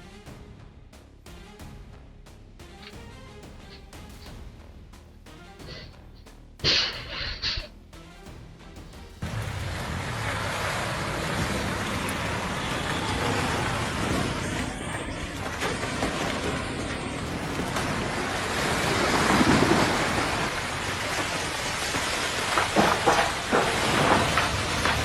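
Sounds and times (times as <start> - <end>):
loud rushing noise: 9.2 - 25.0.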